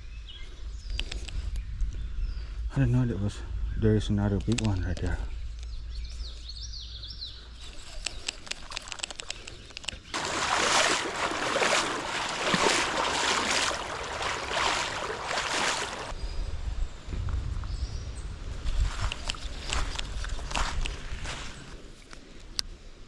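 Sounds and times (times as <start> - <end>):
creek water rushing and splashing: 10.1 - 16.1.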